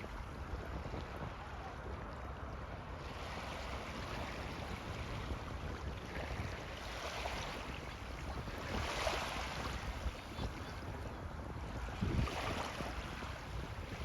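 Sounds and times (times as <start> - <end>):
wind and water rushing: 0.0 - 14.0
wind buffeting microphone: 0.0 - 14.0.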